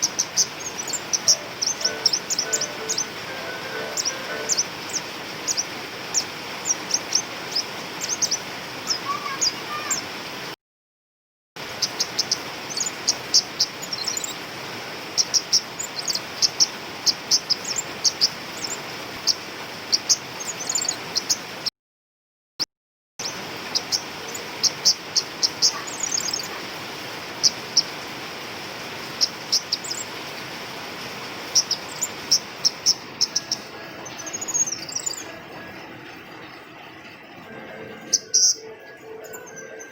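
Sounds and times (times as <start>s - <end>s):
bird high tsit calls: 0.0s - 10.1s, 23.2s - 26.7s, 31.5s - 35.4s, 38.0s - 39.9s
steady hiss: 0.0s - 10.6s, 11.6s - 21.6s, 23.2s - 38.6s.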